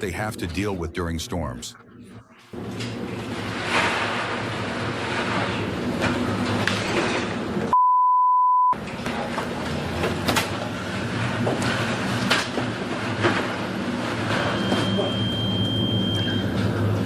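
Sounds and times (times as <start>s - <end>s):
water wash: 2.6s - 7.6s
censor bleep: 7.7s - 8.8s, 14.6s - 16.5s.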